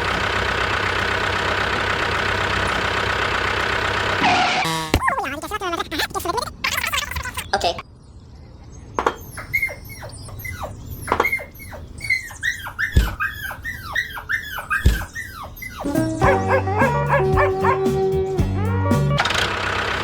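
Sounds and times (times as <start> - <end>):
small dog yelping: 9.1 - 17.9
dull thumps: 13.0 - 13.3, 14.8 - 15.2
music with held notes: 15.9 - 19.2.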